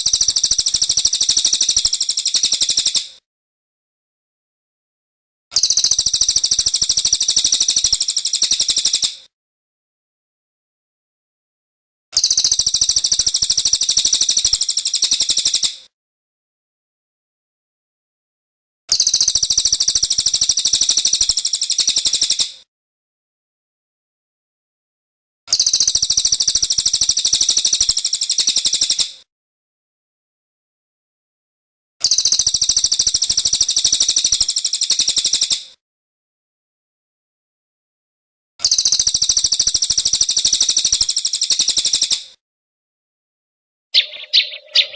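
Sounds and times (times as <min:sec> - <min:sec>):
songbird chattering trill: 0:44.0 - 0:44.9.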